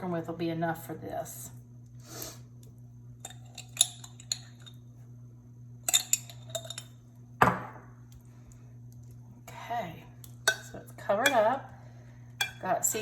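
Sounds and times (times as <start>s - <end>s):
utensil clinking on a dish: 3.2s - 4.8s, 5.8s - 7.0s, 10.4s - 11.6s, 12.4s - 13.0s.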